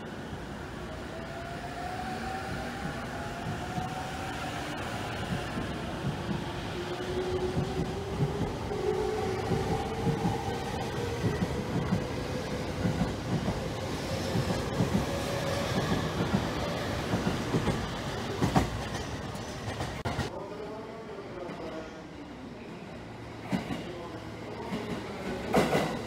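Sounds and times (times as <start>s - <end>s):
distant train approaching: 0.0s - 26.0s
train cars rumbling: 1.8s - 20.4s.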